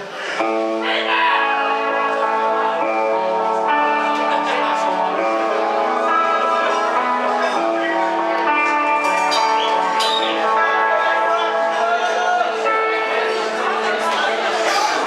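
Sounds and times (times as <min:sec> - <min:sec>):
rock guitar chords: 0:00.4 - 0:15.0.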